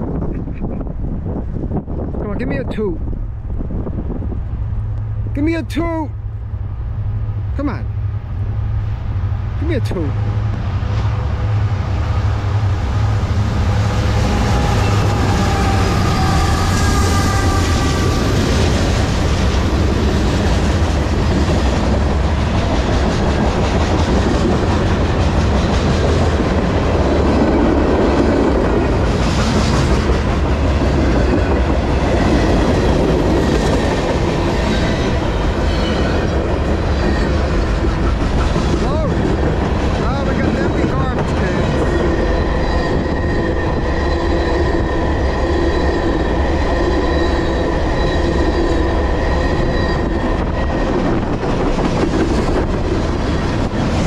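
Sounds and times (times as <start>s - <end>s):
locomotive low rumble: 0.0s - 54.0s
wheels clickety-clack on rails: 12.6s - 54.0s.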